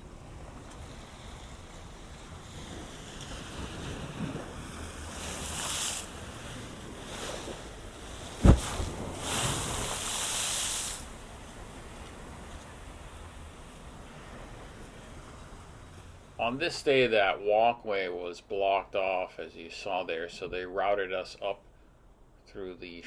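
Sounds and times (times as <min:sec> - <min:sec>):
hissing surges of water: 0:00.0 - 0:16.8
ocean waves against a seawall: 0:00.0 - 0:17.7
sharp thump: 0:08.4 - 0:09.1.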